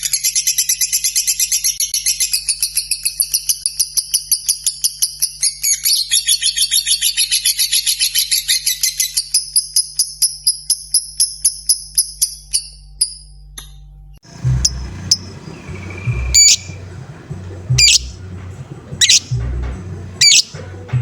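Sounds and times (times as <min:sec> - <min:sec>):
sharp high squeaks: 0:14.3 - 0:16.8, 0:17.7 - 0:18.2, 0:19.0 - 0:20.6
bird ticking chirps: 0:14.3 - 0:21.0
low thumping background: 0:14.3 - 0:21.0.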